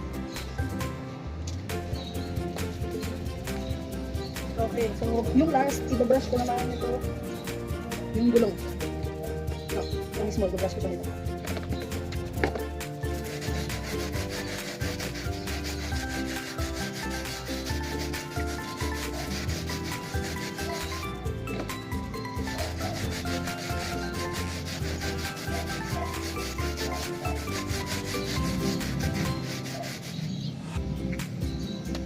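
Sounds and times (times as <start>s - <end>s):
brush scrubbing a tyre: 12.8s - 21.3s, 22.2s - 30.5s.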